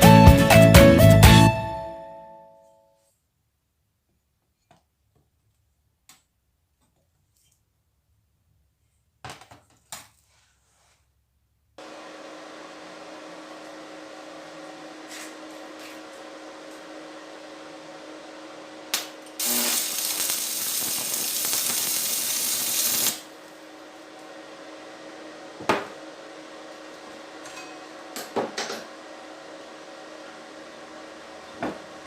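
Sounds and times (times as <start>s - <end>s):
loud even hissing: 19.4s - 23.3s.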